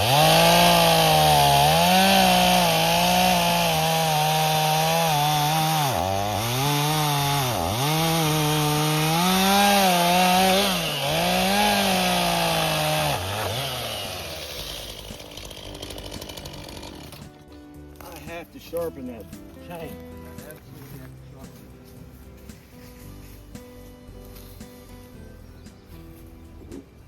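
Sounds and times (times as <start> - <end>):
chainsaw cutting wood: 0.0 - 17.5.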